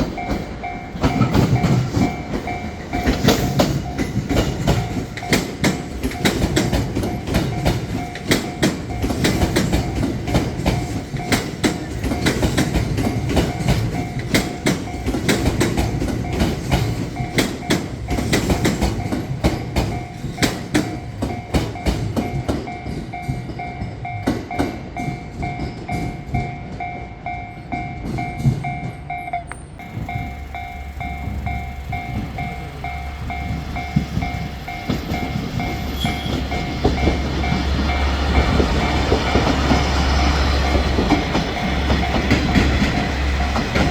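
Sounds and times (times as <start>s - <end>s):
crossing warning bell: 0.0s - 43.9s
train wheels clacking: 0.0s - 43.9s
low hum: 29.5s - 34.8s.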